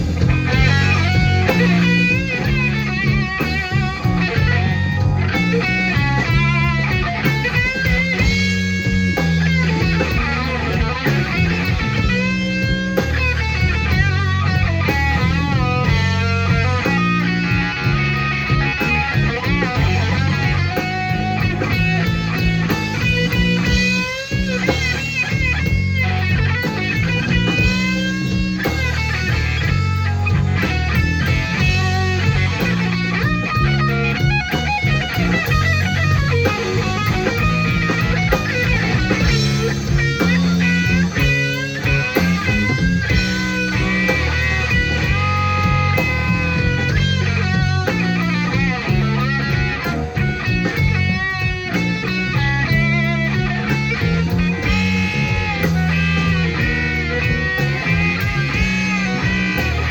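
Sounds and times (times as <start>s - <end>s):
bass and drums: 0.0s - 59.9s
electric guitar solo: 0.0s - 59.9s.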